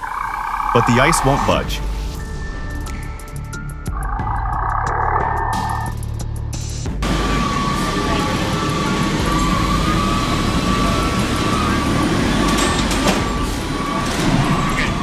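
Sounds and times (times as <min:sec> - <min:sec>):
steady high whine: 0:00.0 - 0:04.6
heavy vehicle rumble: 0:05.9 - 0:15.0.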